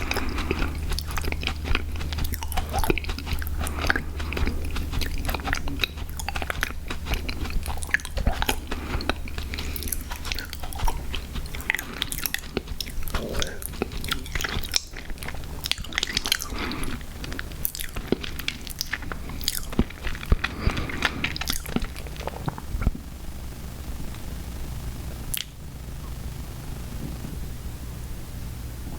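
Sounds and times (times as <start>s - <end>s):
chewing gummy candy: 0.0s - 23.1s
steady low hum: 0.0s - 28.9s.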